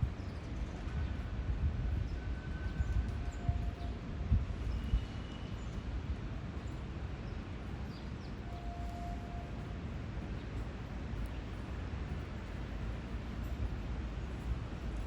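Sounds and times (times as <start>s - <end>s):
electric rail car rumbling: 0.0s - 15.0s.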